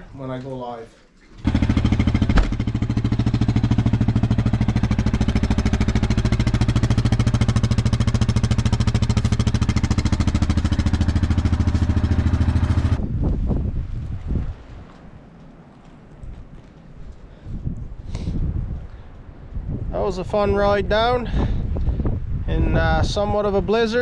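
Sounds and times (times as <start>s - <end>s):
small engine running steadily: 1.4s - 13.0s
knocks: 2.2s - 2.8s.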